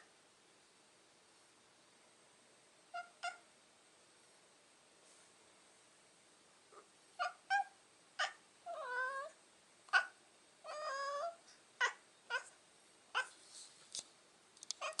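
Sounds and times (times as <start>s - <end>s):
cat mewing and meowing: 3.0s - 3.4s, 7.2s - 12.5s, 13.2s - 13.4s, 14.8s - 15.0s.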